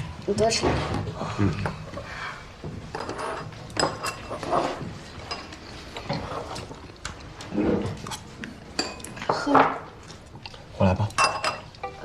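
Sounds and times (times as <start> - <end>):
utensils clinking on dishes: 2.9 - 6.7, 8.7 - 9.8, 11.1 - 12.0.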